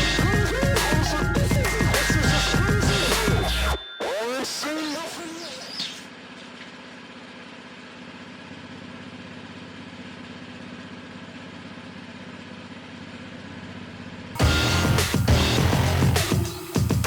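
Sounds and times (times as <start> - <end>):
small engine idling: 0.0 - 3.8, 6.1 - 17.0
loud music: 0.0 - 4.6, 14.4 - 17.0.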